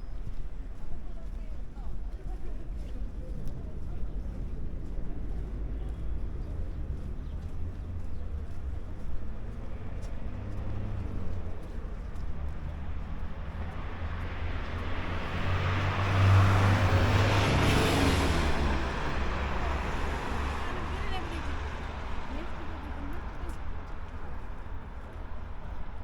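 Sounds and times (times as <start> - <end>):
road traffic rumble: 0.0 - 26.0
vehicle passing close: 4.2 - 24.0.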